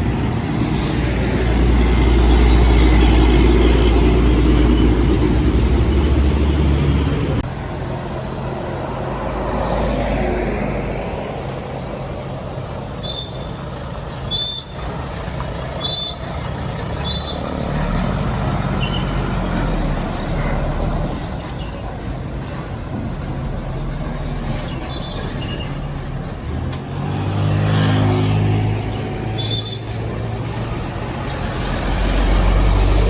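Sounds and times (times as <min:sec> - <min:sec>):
diesel truck engine passing: 0:00.0 - 0:33.0
traffic rumble: 0:00.0 - 0:33.0.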